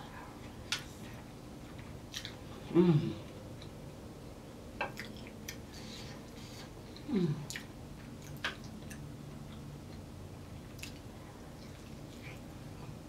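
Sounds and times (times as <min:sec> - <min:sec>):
person humming mmm: 0:02.6 - 0:03.3, 0:07.0 - 0:07.6
wet chewing: 0:10.6 - 0:12.5.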